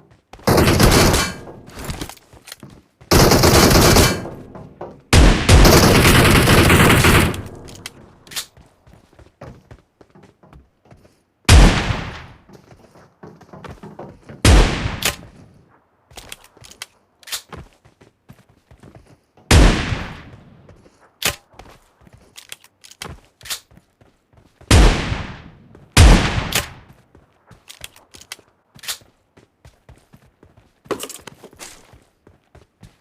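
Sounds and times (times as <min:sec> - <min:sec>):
shotgun blasts: 0:05.1 - 0:07.8, 0:11.5 - 0:12.4, 0:14.4 - 0:15.3, 0:19.5 - 0:20.4, 0:24.7 - 0:26.9.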